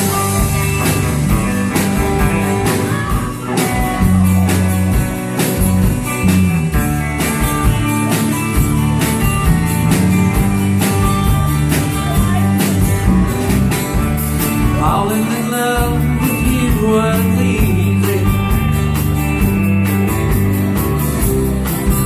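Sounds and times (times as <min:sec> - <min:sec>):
bass: 0:00.0 - 0:22.0
drums: 0:00.0 - 0:22.0
guitar: 0:00.0 - 0:22.0.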